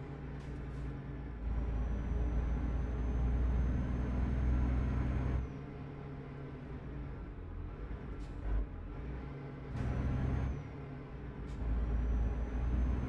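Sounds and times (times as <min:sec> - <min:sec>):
truck diesel engine: 0:00.0 - 0:13.0.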